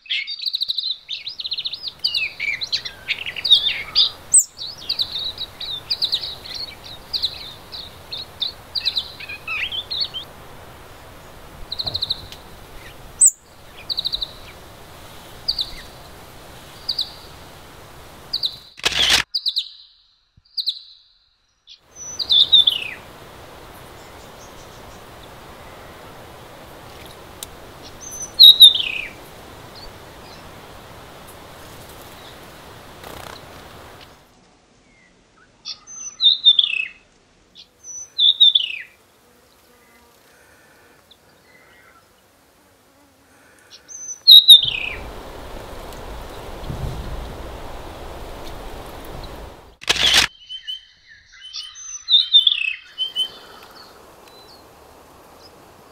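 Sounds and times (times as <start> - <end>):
small songbirds chirping: 0.0 - 34.2, 43.4 - 55.9
faint outdoor hiss: 0.0 - 55.9
bird calls sliding downward: 1.1 - 10.3, 18.3 - 19.2, 26.9 - 30.6, 44.1 - 50.3
burst of noise: 44.4 - 50.3.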